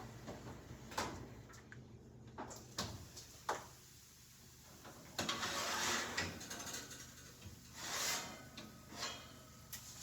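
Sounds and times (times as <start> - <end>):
pan scraping and sliding: 5.3 - 6.2, 7.7 - 9.4.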